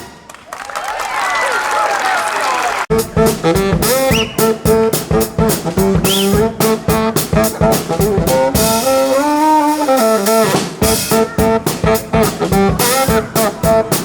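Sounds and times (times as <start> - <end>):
brass band playing: 0.0 - 0.6, 2.9 - 14.0
steady drum beat: 2.9 - 14.0.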